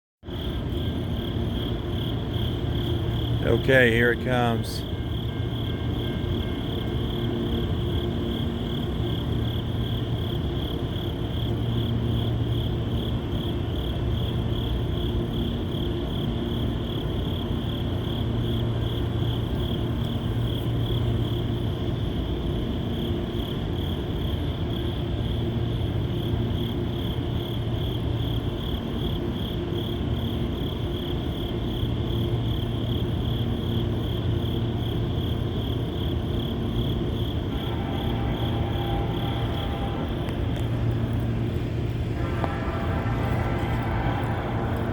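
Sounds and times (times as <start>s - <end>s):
crickets chirping: 0.2s - 44.9s
low droning hum: 0.3s - 44.9s.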